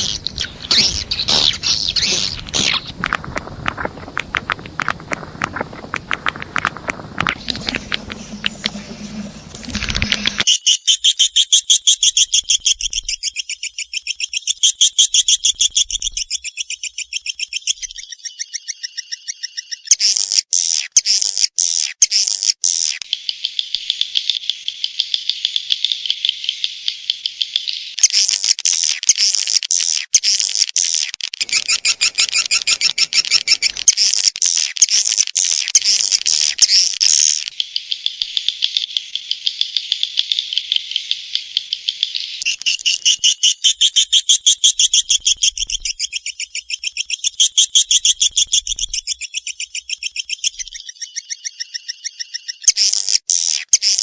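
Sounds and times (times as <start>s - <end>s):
swiftlets twittering: 0.0s - 10.4s, 31.4s - 34.3s.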